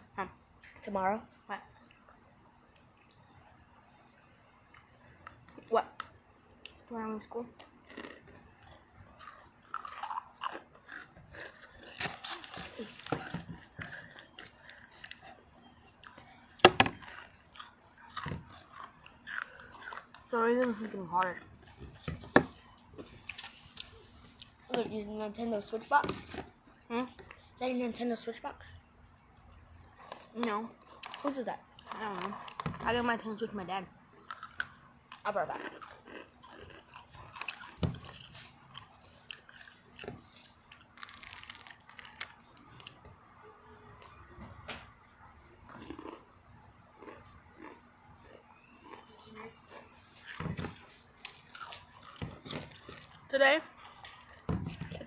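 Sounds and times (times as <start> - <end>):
crunching chips being chewed: 7.5 - 22.0, 22.6 - 24.8, 29.8 - 33.3, 34.2 - 43.1, 45.7 - 55.0.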